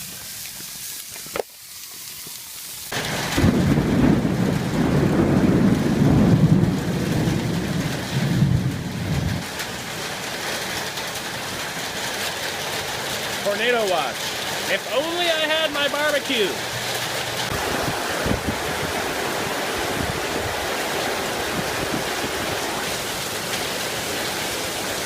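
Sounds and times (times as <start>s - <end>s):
rain falling: 0.0s - 25.0s
thunder rumbling: 3.0s - 10.0s, 16.6s - 25.0s.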